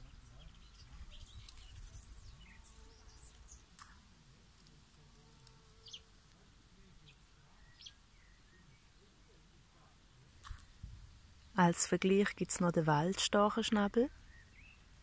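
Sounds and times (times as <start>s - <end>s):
faint bird chirps: 0.0s - 4.0s, 6.8s - 10.3s, 14.1s - 15.0s.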